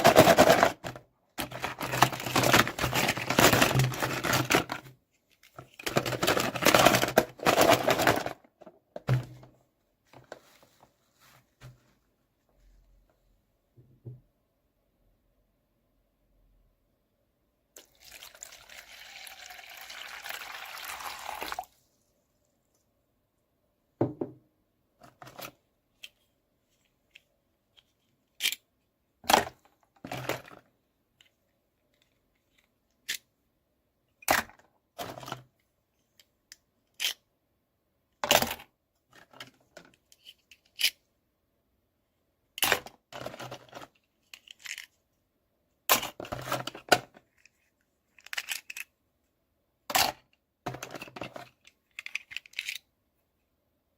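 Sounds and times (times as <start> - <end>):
plastic packaging rustling: 0.0 - 8.4.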